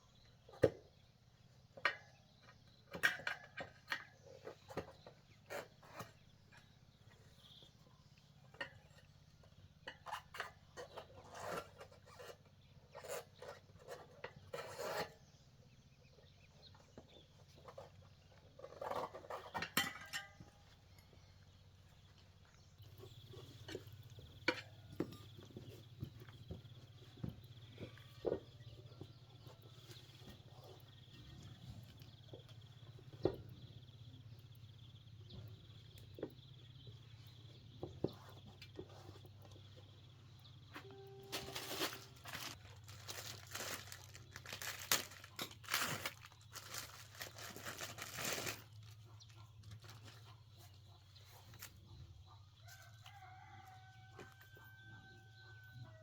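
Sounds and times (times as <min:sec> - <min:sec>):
hand tools clinking and scraping: 0:01.8 - 0:07.7, 0:08.3 - 0:32.5, 0:37.8 - 0:53.3
faint high tone: 0:40.8 - 0:42.2.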